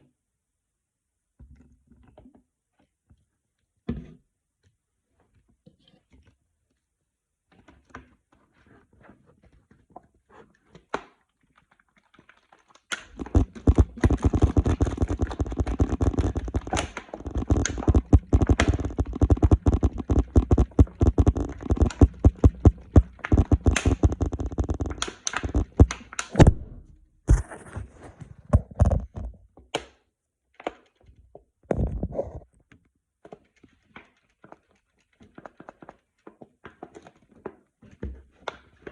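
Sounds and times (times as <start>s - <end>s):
scattered knocks: 13.2s - 26.8s.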